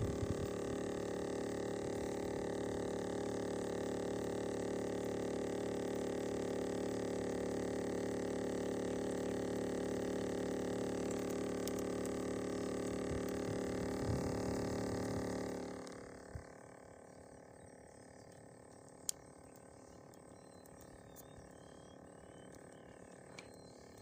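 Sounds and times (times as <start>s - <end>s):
pump motor running: 0.0s - 24.0s.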